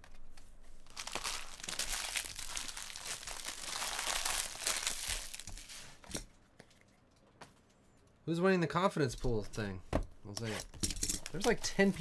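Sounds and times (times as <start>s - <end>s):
wrapper tearing and crinkling: 0.8s - 6.0s.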